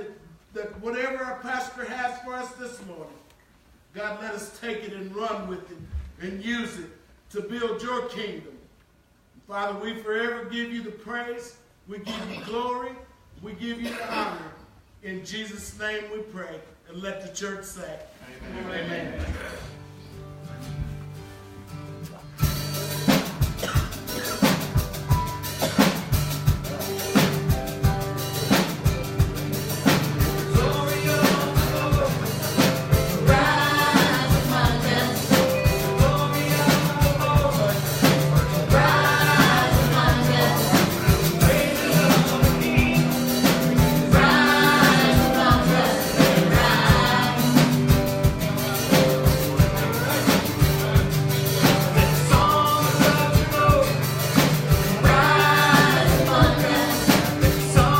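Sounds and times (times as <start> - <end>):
worship band with drums and bass: 19.0 - 57.9
person singing: 29.6 - 57.9.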